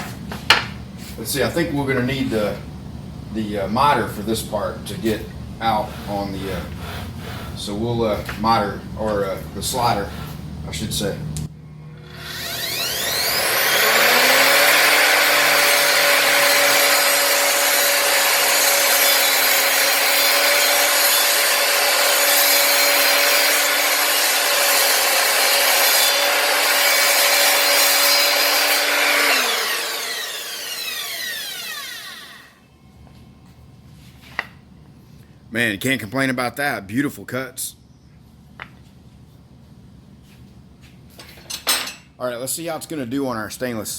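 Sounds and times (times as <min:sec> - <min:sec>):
mitre saw cutting board: 0:12.0 - 0:32.5.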